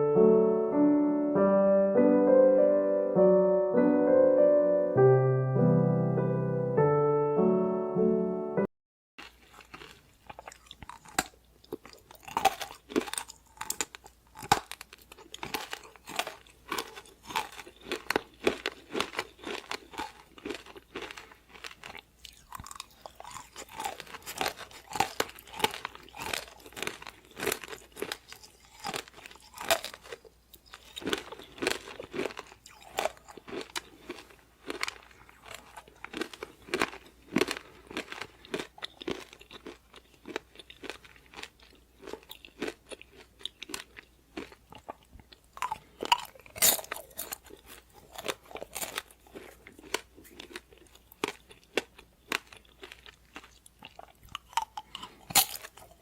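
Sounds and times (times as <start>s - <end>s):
person chewing crispy food: 9.2s - 56.0s.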